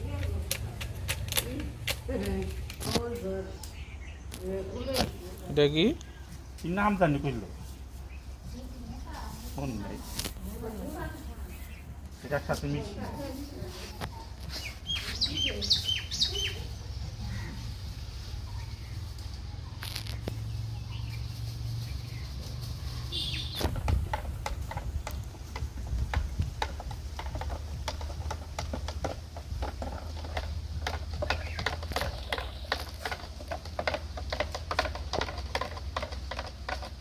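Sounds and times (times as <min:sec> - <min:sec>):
bird chirping: 0:03.1 - 0:09.4, 0:14.0 - 0:25.6, 0:30.4 - 0:33.5
irregular clicks and knocks: 0:23.6 - 0:37.0.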